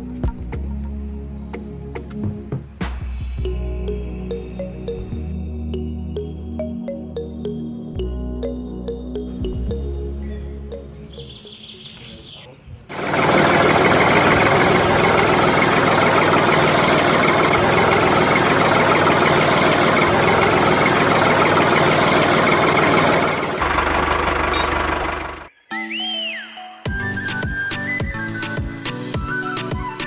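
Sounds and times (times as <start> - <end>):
small electric motor buzzing: 12.9 - 15.1.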